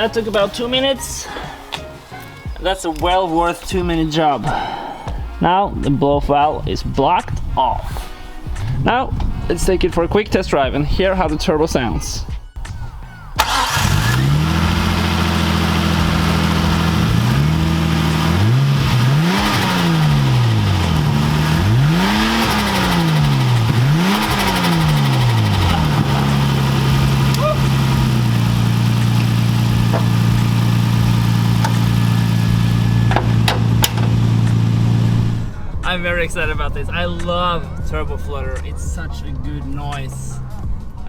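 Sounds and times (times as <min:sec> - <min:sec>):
car engine idling and revving: 0:13.4 - 0:35.9.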